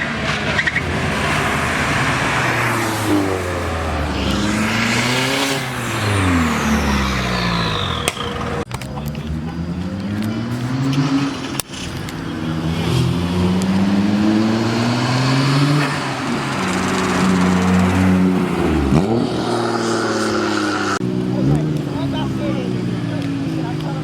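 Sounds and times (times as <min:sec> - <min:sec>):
car engine accelerating hard: 0:00.0 - 0:24.0.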